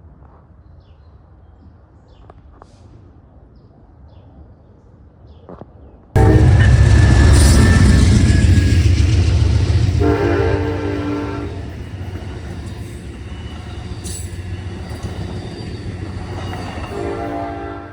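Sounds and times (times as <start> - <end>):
train horn chord: 6.2 - 17.9
train rumble: 6.2 - 17.9.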